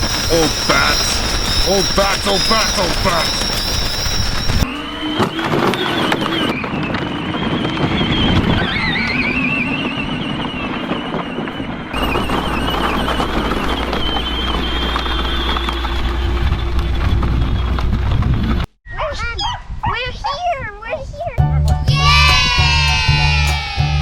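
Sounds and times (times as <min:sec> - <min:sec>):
electric motors whining: 0:00.0 - 0:18.4.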